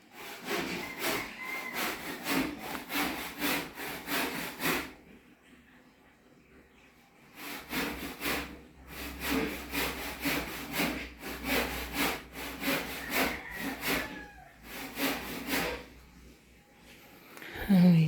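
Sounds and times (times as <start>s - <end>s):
hand saw cutting wood: 0.0s - 5.1s, 7.3s - 16.1s.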